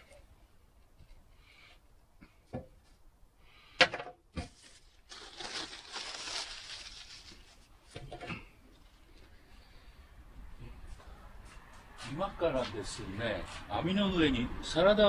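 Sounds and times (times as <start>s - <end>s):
crinkling rustling: 4.5s - 8.1s.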